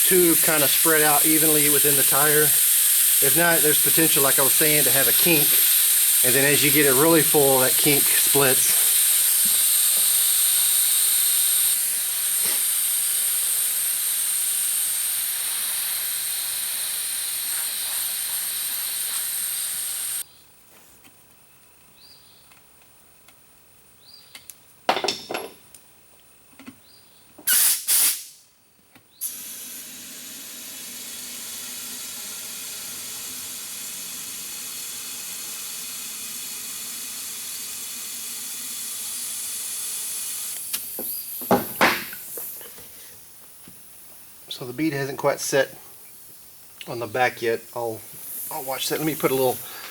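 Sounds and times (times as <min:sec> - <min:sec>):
air hissing through tire valve: 0:00.0 - 0:20.2, 0:27.5 - 0:28.5, 0:29.2 - 0:49.9
short blasts of air: 0:00.0 - 0:20.2, 0:27.5 - 0:28.5, 0:47.8 - 0:49.9.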